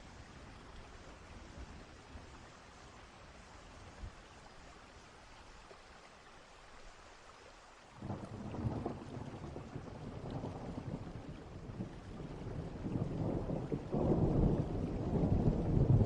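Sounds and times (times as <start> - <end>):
rain hiss: 0.0 - 16.0
low thunder rumble: 8.0 - 16.0.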